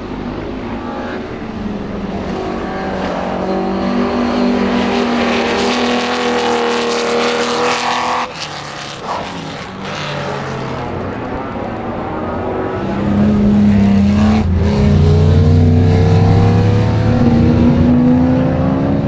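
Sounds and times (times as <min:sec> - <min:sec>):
lower engine note: 0:00.0 - 0:19.0
race car engine at full throttle: 0:00.0 - 0:19.0.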